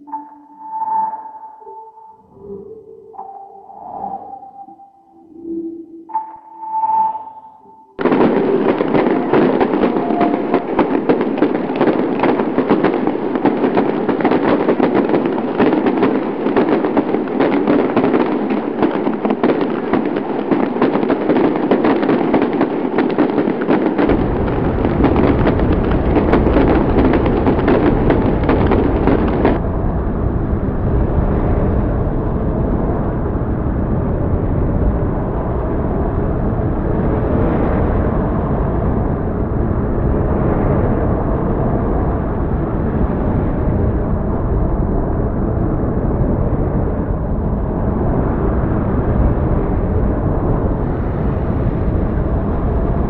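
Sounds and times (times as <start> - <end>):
heavy rain pouring: 8.0 - 29.6
deep low rumble: 8.0 - 53.0.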